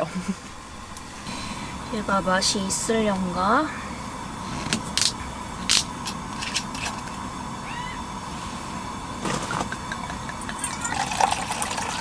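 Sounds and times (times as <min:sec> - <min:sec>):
faint hum: 0:00.0 - 0:12.0
wine bottle clicks and taps: 0:09.7 - 0:10.8.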